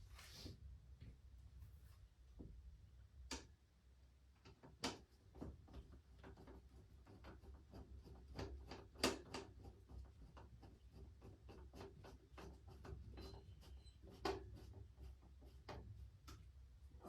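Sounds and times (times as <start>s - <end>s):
light clicks and taps: 15.7s - 16.5s.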